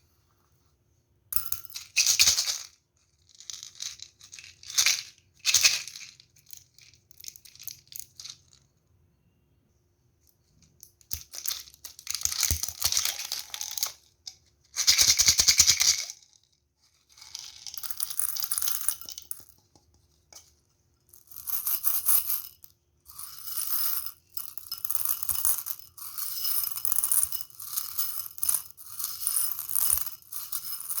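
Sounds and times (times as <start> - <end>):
candy rattling: 21.2 - 31.0.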